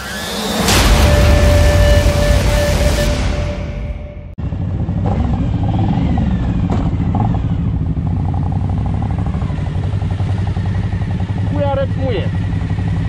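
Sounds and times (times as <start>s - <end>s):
intro music: 0.0s - 4.4s
motorcycle engine running: 0.7s - 13.0s.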